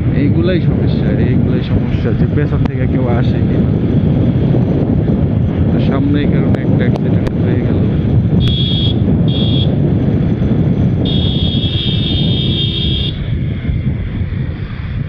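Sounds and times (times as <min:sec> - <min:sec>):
motorcycle engine rumble: 0:00.0 - 0:15.0
traffic: 0:00.0 - 0:15.0
wind on microphone: 0:00.0 - 0:15.0
high-pitched vehicle horn: 0:08.4 - 0:09.8, 0:11.0 - 0:13.2.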